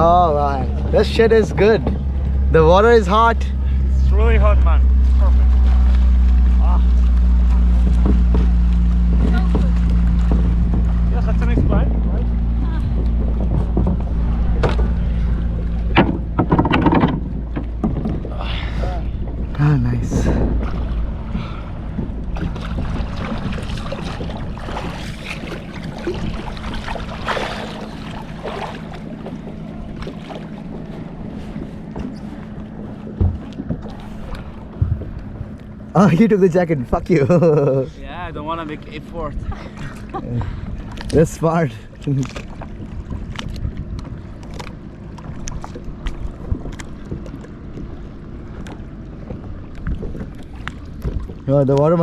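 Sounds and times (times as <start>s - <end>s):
low hum: 0.0s - 52.0s
water sloshing around kayak: 0.0s - 52.0s
wind on microphone: 7.7s - 28.6s, 45.3s - 52.0s
wind noise on microphone: 19.0s - 27.4s, 49.2s - 51.5s.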